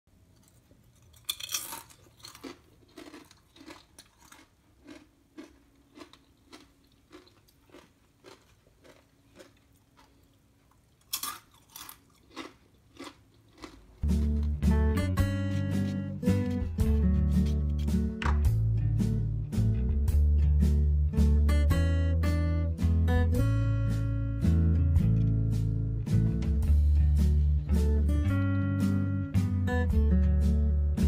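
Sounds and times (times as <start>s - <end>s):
chips being chewed: 0.4s - 14.7s
guitar music: 14.0s - 31.0s.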